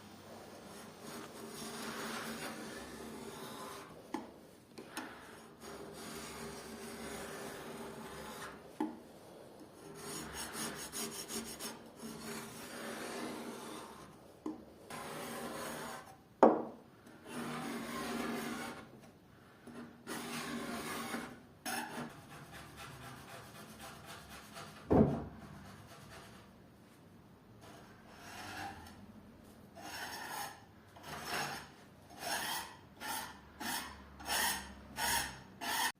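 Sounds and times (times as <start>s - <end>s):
tool scraping paint off wood: 0.7s - 4.2s, 4.9s - 9.0s, 9.8s - 14.2s, 19.7s - 26.4s, 29.8s - 35.9s.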